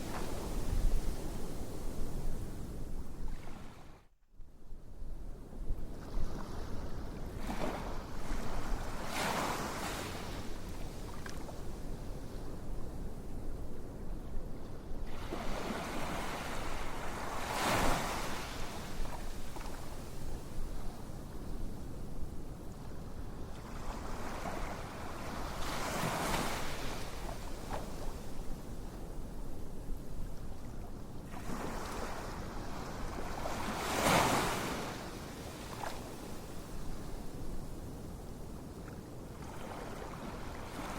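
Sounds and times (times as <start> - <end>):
low rumble of sea: 0.0 - 40.9
ocean waves breaking on shore: 6.0 - 11.7, 15.0 - 20.6, 23.4 - 28.4, 31.3 - 37.2, 39.3 - 40.9.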